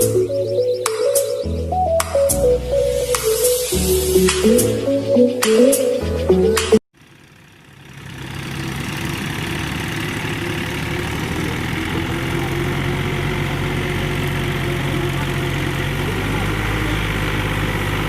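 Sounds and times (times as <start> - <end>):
background music: 0.0 - 6.8
tractor diesel engine running: 6.4 - 18.0.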